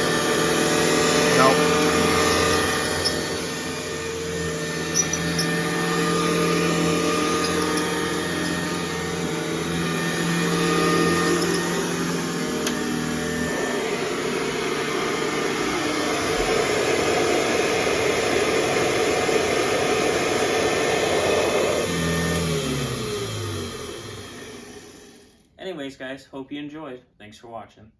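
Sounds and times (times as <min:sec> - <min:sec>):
vacuum cleaner running: 0:00.0 - 0:25.5.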